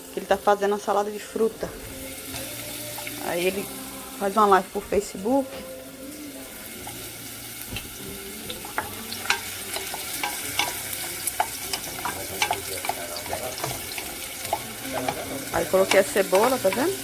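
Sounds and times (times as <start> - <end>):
onion sizzling in oil: 0.0 - 17.0
utensil scraping and knocking pan: 7.8 - 17.0.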